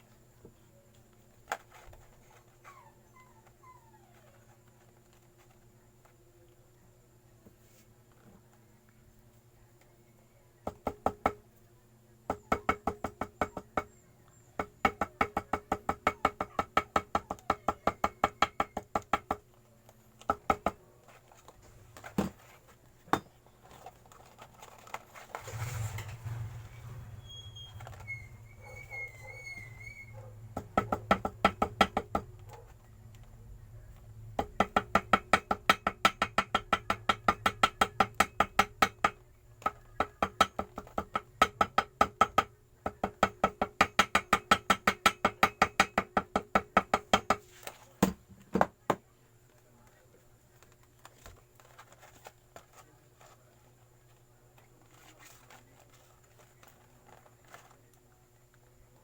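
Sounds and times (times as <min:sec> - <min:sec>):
small hammer tapping on paper: 0:12.3 - 0:14.0, 0:14.6 - 0:19.5, 0:20.2 - 0:21.4, 0:30.5 - 0:32.6, 0:34.4 - 0:49.0.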